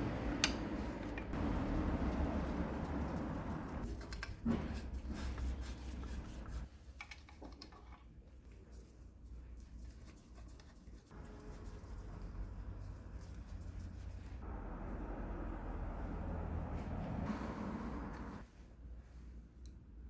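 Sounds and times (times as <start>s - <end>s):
scratching of tool parts: 1.1s - 14.4s.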